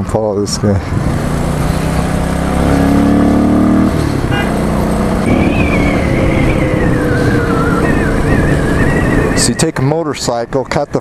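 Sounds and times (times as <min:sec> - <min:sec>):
thin whine sliding downward: 0:05.2 - 0:09.7.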